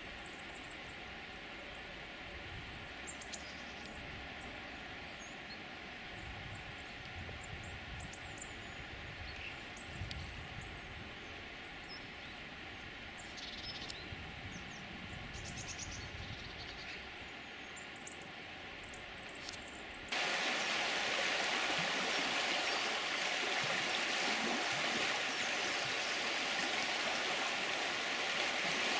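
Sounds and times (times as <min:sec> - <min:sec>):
small birds chirping: 0:15.4 - 0:28.9
stream water flowing: 0:20.1 - 0:28.9.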